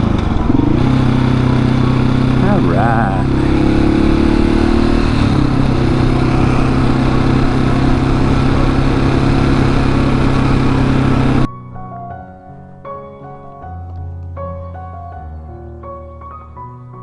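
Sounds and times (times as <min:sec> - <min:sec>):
motorcycle engine running: 0:00.0 - 0:11.5.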